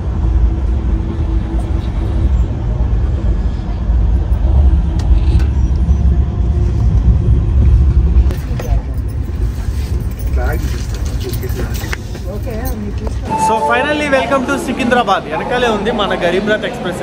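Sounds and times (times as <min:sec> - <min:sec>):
train running rumble: 0:00.0 - 0:15.2.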